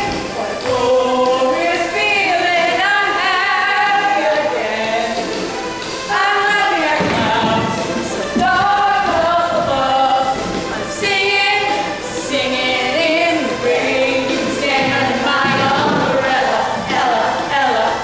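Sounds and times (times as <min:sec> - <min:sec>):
vocal group singing in harmony: 0:00.0 - 0:18.0.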